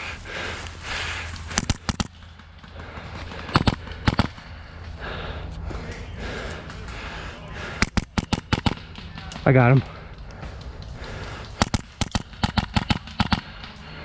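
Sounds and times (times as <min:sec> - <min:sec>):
airsoft rifle firing in bursts: 0:01.5 - 0:04.7, 0:07.7 - 0:09.8, 0:11.5 - 0:14.0.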